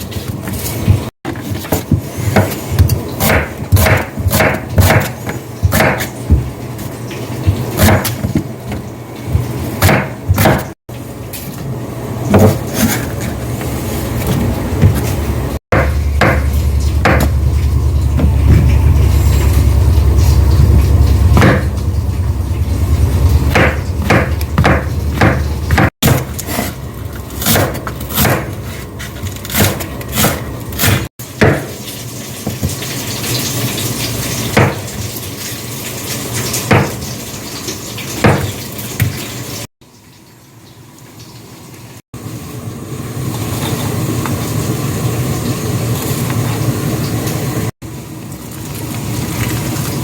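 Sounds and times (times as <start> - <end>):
loud low rumble: 15.8 - 25.7.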